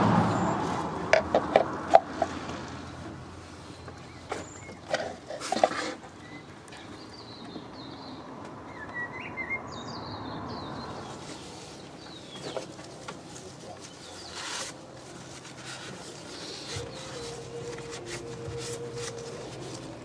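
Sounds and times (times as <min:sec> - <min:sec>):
small birds chirping: 0:06.1 - 0:14.7.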